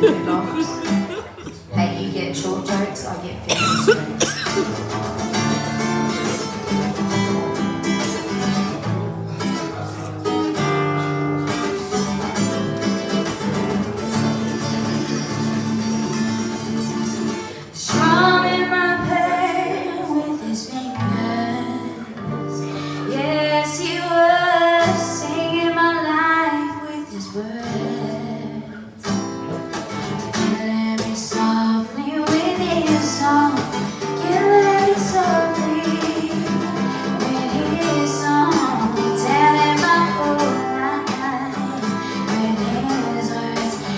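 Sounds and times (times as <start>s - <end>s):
person singing: 0.0s - 3.0s
acoustic guitar strummed and picked: 0.0s - 43.9s.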